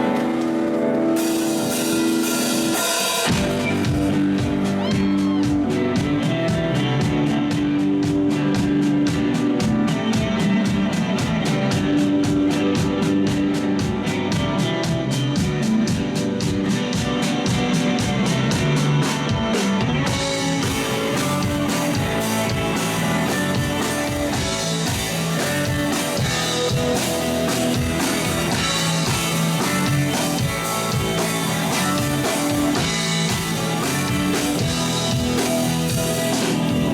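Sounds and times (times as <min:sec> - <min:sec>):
bass guitar: 0:00.0 - 0:36.9
drums with cymbal beat: 0:00.0 - 0:36.9
electric guitar: 0:00.0 - 0:36.9.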